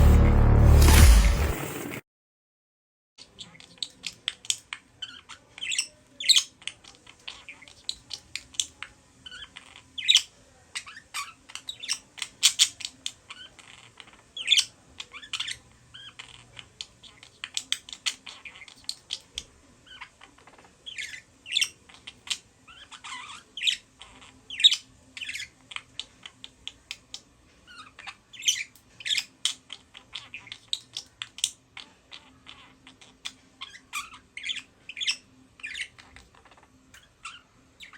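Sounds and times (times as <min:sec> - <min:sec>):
budgerigars chattering and warbling: 0:03.2 - 0:37.9.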